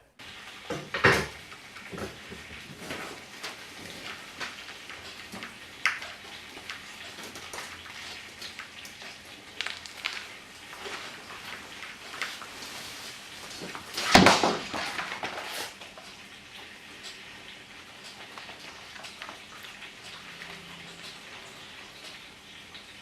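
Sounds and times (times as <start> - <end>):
objects knocking together: 13.6 - 15.6.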